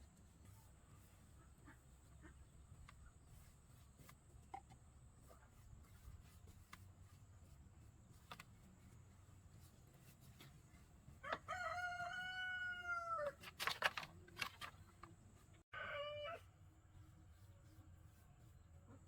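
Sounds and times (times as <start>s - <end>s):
rooster crowing: 11.2s - 13.4s, 15.7s - 16.5s.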